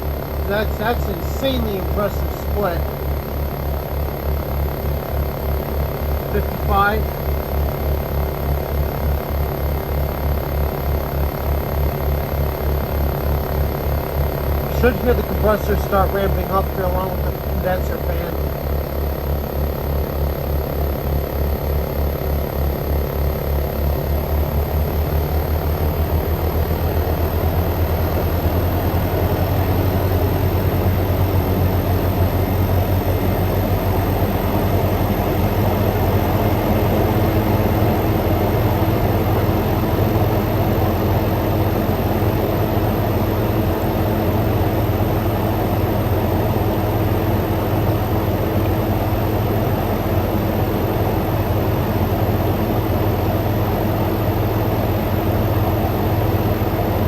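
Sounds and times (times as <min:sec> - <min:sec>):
steady tone: 0:00.0 - 0:03.0, 0:06.3 - 0:07.2
air conditioner hum and fan rush: 0:00.0 - 0:57.0.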